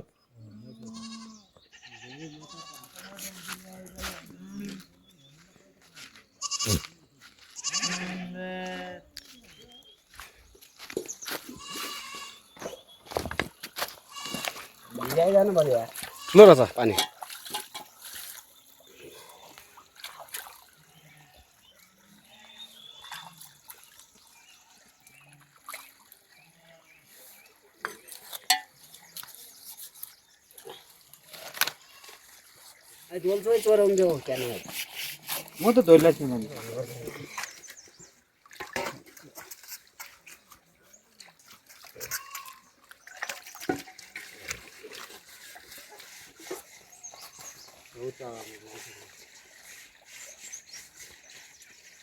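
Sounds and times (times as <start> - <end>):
water dripping and trickling: 12.6 - 22.1, 23.0 - 26.4, 27.8 - 52.0.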